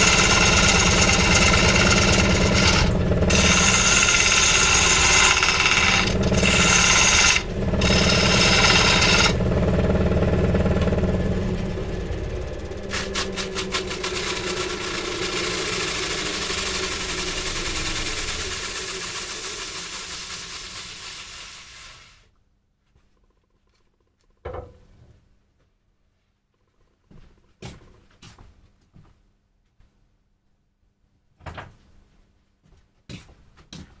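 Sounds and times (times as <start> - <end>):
chainsaw running: 0.0 - 22.2
steady hiss: 15.7 - 22.2.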